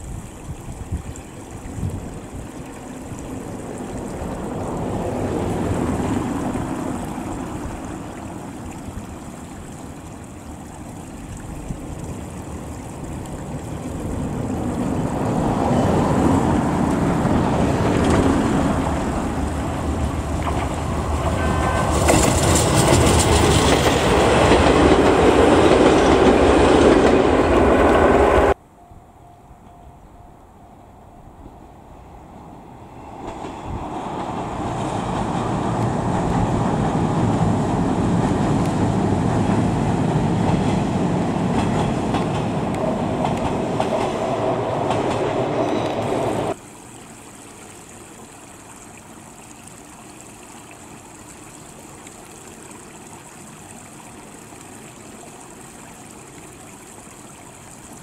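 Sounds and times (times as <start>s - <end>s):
train wheels rumbling on rails: 15.4s - 28.6s, 32.4s - 46.6s.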